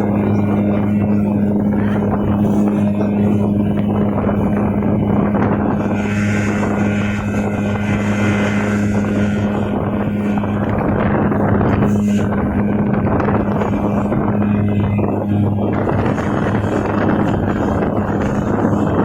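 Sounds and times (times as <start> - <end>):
speedboat motor running: 0.0 - 19.0
water and wind noise: 0.0 - 19.0.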